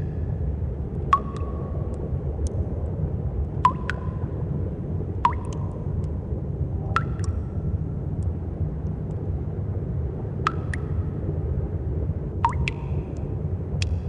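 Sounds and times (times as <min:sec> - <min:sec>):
steady low rumble: 0:00.0 - 0:14.0
water drops plinking into pool: 0:01.1 - 0:02.6, 0:03.6 - 0:04.4, 0:05.2 - 0:06.2, 0:06.9 - 0:07.6, 0:10.4 - 0:11.1, 0:12.4 - 0:14.0.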